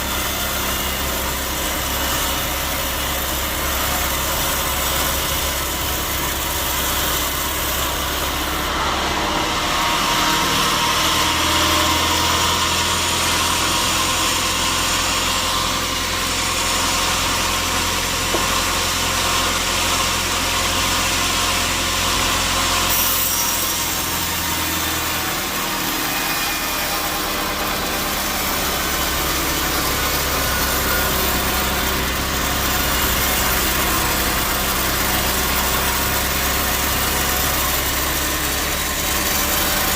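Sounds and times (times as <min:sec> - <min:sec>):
saw blade cutting wood: 0:00.0 - 0:39.9
sawmill machinery running: 0:00.0 - 0:39.9.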